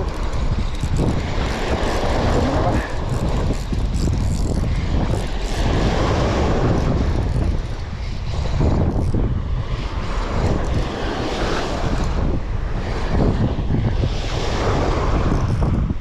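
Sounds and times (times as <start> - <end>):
boat engine running: 0.0 - 12.7
wind buffeting microphone: 0.0 - 16.0.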